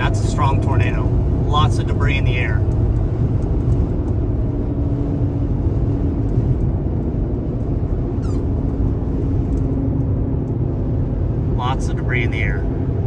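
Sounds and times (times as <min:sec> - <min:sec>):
vehicle noise: 0:00.0 - 0:13.0
wind rumble on microphone: 0:00.0 - 0:13.0
brief high squeak: 0:08.2 - 0:08.5.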